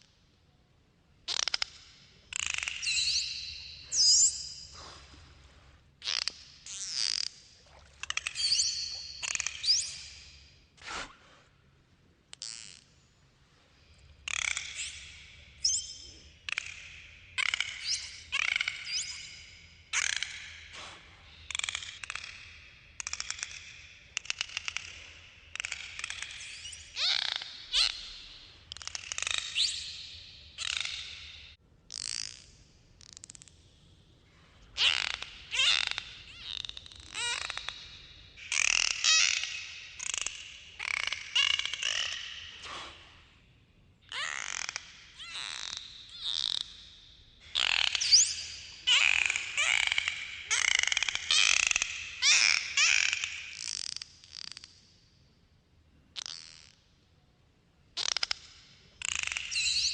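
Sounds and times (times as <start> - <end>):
dolphin clicks: 1.2 - 4.3, 6.0 - 10.5, 12.2 - 13.0, 14.0 - 33.8, 34.8 - 43.4, 44.1 - 55.0, 58.0 - 59.9
dolphin whistles: 34.8 - 43.1, 44.1 - 54.0.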